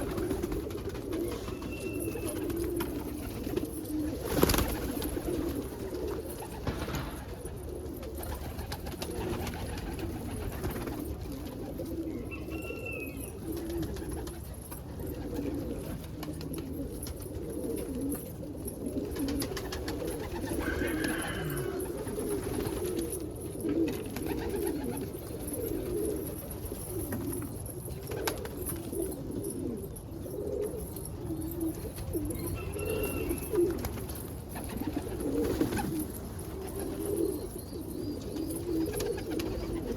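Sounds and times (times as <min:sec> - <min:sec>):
birds cooing: 0:00.0 - 0:39.9
higher bird calls: 0:20.6 - 0:21.9.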